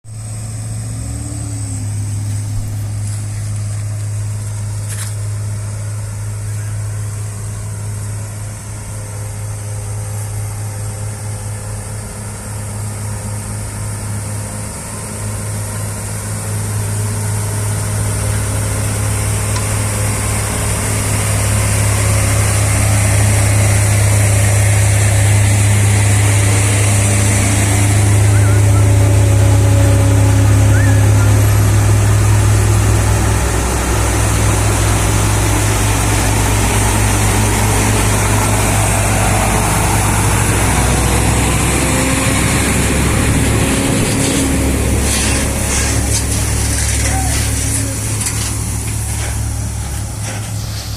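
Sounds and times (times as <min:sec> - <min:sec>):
vehicle engine in mud: 0:00.0 - 0:50.9
hiss: 0:44.2 - 0:50.9.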